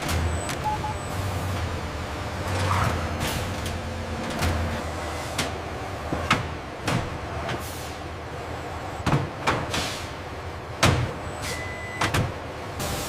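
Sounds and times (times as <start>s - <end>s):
low machinery hum: 0.0s - 13.0s
mechanical clanks and knocks: 2.5s - 7.6s, 9.0s - 9.9s, 10.8s - 11.2s, 12.0s - 12.4s.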